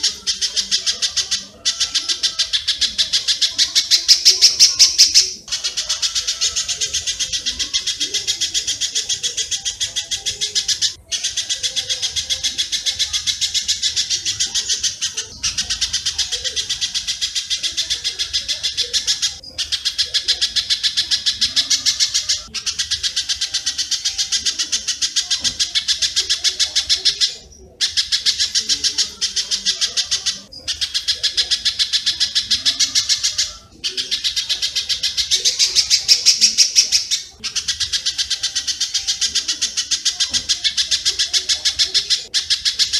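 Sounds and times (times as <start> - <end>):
rapid high bird chirps: 0.0 - 42.9.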